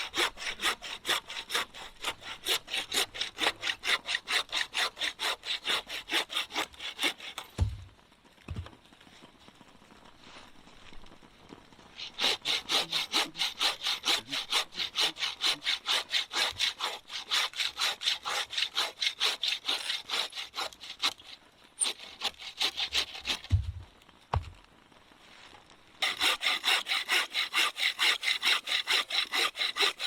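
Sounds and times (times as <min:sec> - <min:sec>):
hand saw cutting wood: 0:00.0 - 0:07.6, 0:12.0 - 0:23.6, 0:26.0 - 0:30.0
low thumps: 0:07.6 - 0:07.9, 0:23.4 - 0:24.6.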